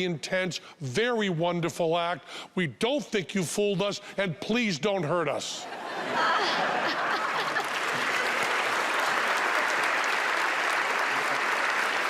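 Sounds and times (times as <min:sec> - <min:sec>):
audience applauding: 0:06.8 - 0:12.0
audience cheering: 0:06.9 - 0:12.0.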